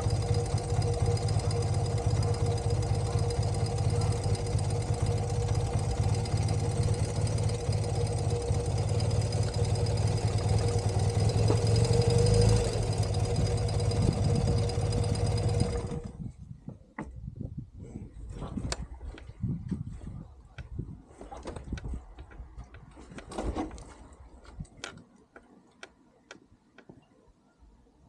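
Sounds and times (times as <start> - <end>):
motorcycle engine idling: 0.0 - 16.3.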